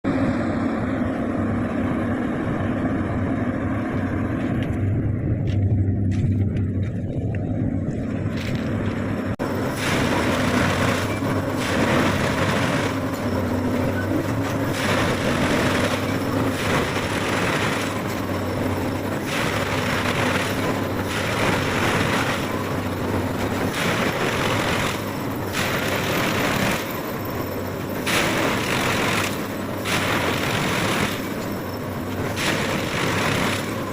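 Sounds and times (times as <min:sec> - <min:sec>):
machine engine droning: 0:00.0 - 0:33.9.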